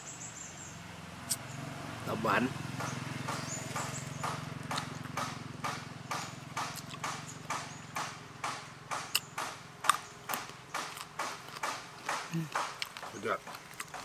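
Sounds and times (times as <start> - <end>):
wet chewing and mouth clicks: 3.3 - 14.0.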